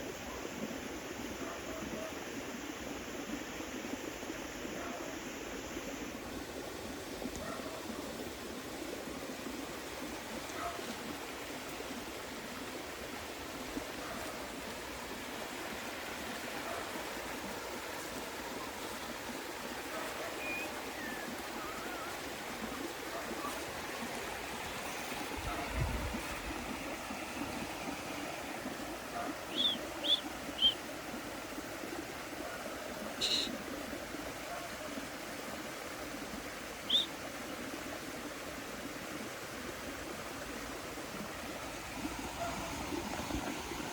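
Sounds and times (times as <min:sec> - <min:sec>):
running water rushing: 0:00.0 - 0:43.9
short high chirps: 0:33.2 - 0:33.5.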